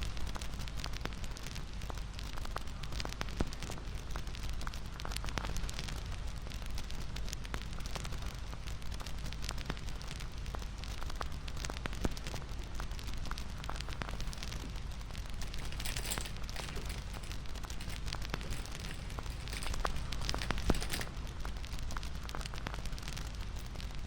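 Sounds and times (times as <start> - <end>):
wood fire crackling: 0.4 - 24.0.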